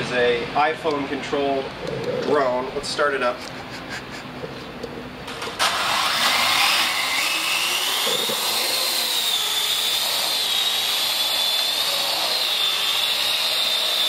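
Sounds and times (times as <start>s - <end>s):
drone motors whining: 3.5s - 14.0s.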